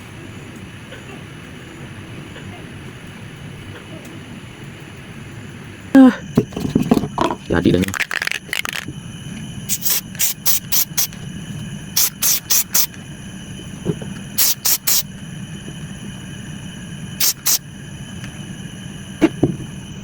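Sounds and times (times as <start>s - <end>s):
steady low hum: 0.0s - 20.0s
spray nozzle hissing puffs: 8.2s - 19.9s.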